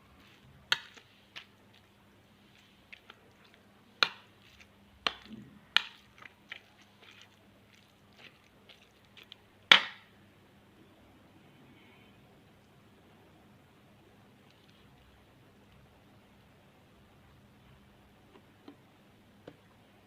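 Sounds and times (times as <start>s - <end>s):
food squishing being mashed: 0.1s - 10.1s.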